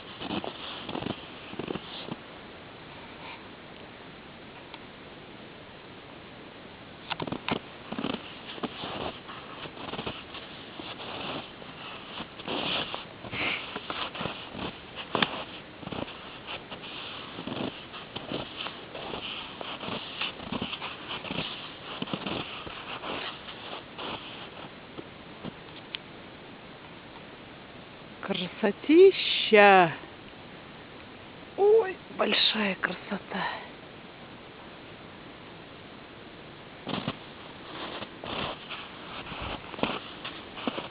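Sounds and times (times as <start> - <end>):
footsteps crunching in snow: 0.0 - 2.2, 7.2 - 24.8, 36.8 - 40.9.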